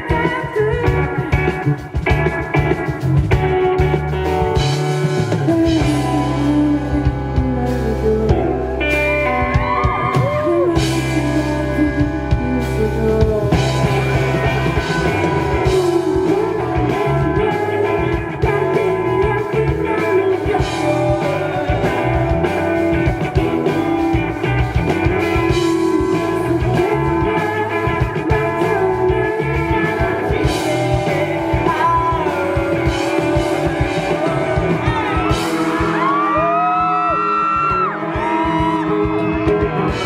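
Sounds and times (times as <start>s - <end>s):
electric guitar with bent notes: 0.0s - 40.0s
live rock band playing: 0.0s - 40.0s.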